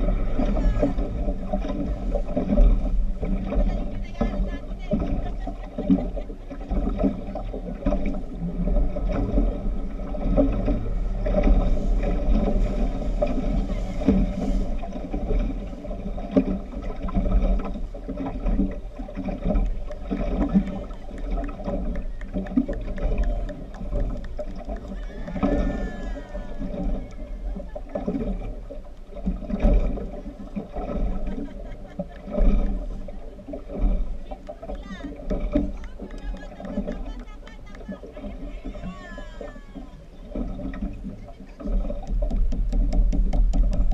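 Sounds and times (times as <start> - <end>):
rushing water: 0.0 - 43.9
speedboat engine rumble: 0.0 - 43.9
voices: 3.5 - 6.6, 20.5 - 28.2, 34.2 - 40.4.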